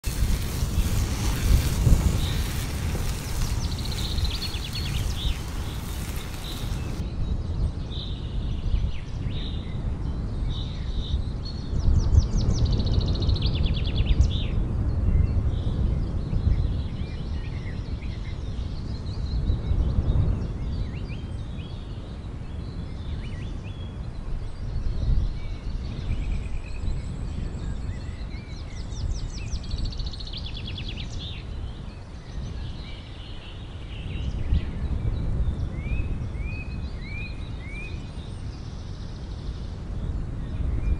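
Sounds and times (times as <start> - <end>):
birds chirping and trilling: 0.0 - 7.0.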